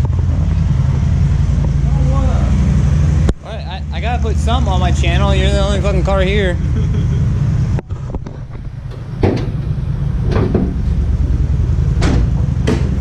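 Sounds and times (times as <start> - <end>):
steady low rumble: 0.0 - 13.0
sharp clunks: 7.8 - 10.8, 12.0 - 13.0.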